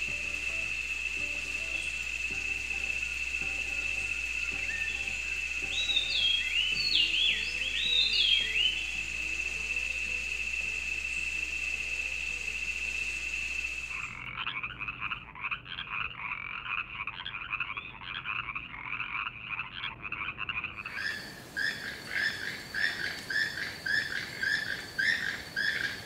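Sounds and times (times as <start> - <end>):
high-pitched buzz: 0.0 - 14.2
frog chirping call: 0.0 - 26.0
frogs trilling chorus: 0.0 - 26.0.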